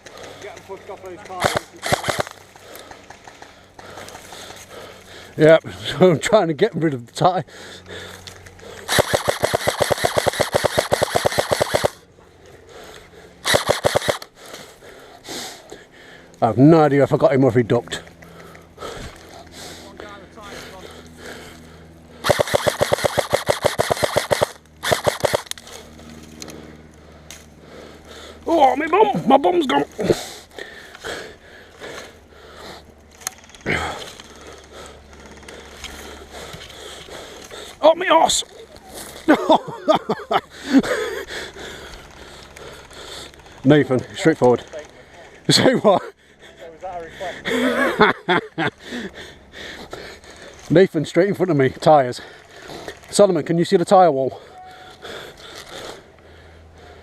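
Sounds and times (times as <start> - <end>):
airsoft rifle automatic fire: 1.3 - 2.4, 8.9 - 12.0, 13.4 - 14.3, 22.2 - 25.7
man breathing hard: 1.7 - 6.0, 7.4 - 16.4, 18.0 - 28.6, 29.9 - 37.8, 38.4 - 44.2, 46.1 - 50.7, 52.1 - 53.1, 54.3 - 57.0.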